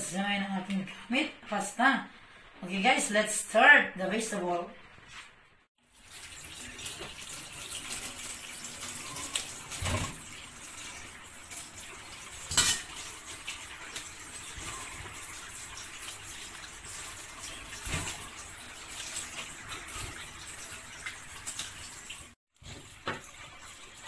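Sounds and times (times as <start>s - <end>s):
tap water splashing in colander: 5.8s - 24.0s.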